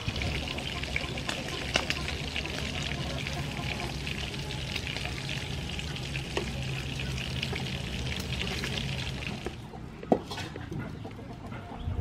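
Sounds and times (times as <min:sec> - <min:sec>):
ribs sizzling in hot oil: 0:00.0 - 0:09.6.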